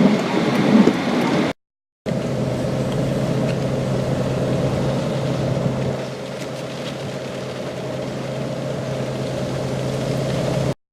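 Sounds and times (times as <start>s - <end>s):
road and air noise: 0.0s - 10.8s
car engine hum: 2.1s - 10.8s.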